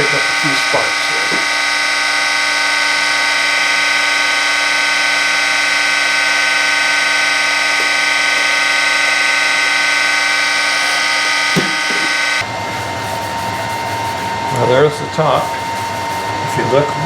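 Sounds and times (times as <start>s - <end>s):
surface grinder high whine: 0.0s - 17.0s
brief knock: 11.6s - 12.1s.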